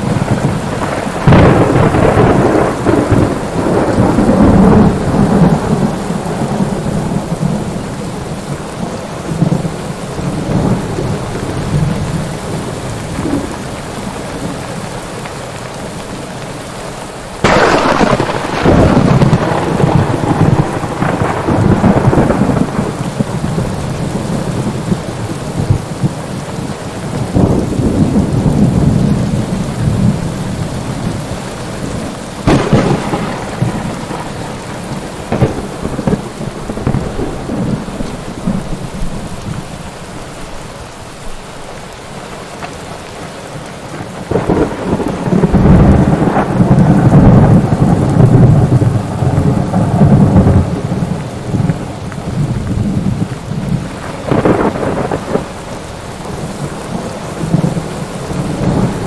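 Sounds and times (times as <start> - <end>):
thunder rolling and cracking: 0.0 - 14.6, 17.4 - 39.8, 43.9 - 59.0
steady rain: 0.0 - 59.0.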